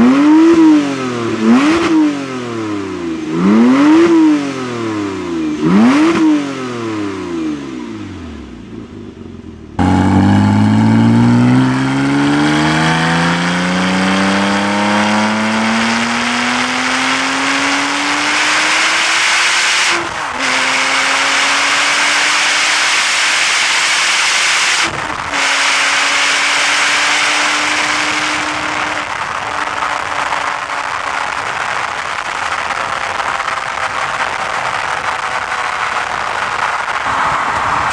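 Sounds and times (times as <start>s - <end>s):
car engine revving and accelerating: 0.0s - 8.5s, 9.8s - 37.9s.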